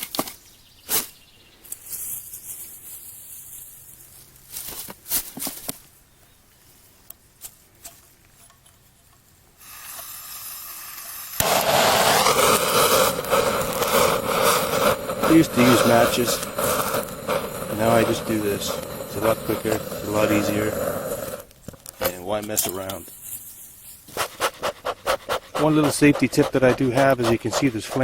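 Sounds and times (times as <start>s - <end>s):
gas torch flame hissing: 9.6s - 23.2s, 24.1s - 28.0s.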